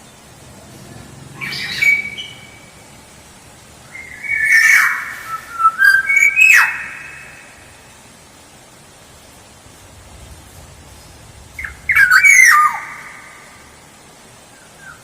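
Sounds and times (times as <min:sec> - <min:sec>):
oriole whistling calls: 0:01.4 - 0:02.9, 0:03.9 - 0:07.8, 0:10.9 - 0:15.0.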